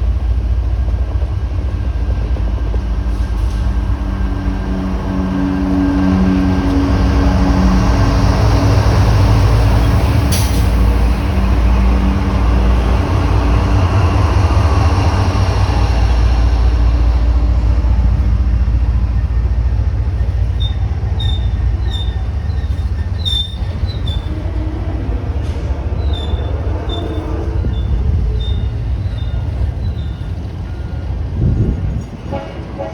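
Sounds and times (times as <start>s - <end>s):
train diesel rumble: 0.0s - 32.9s
train wheel squeaks: 20.0s - 31.2s.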